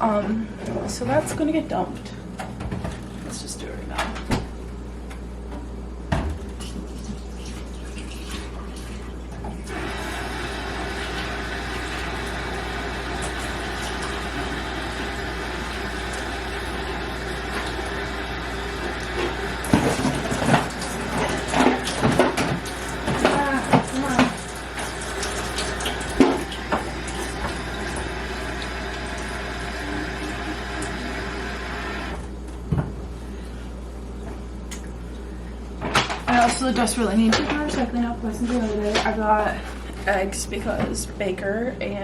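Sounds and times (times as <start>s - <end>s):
milk pouring into sink: 6.7s - 32.2s
water running into sink: 6.7s - 32.2s.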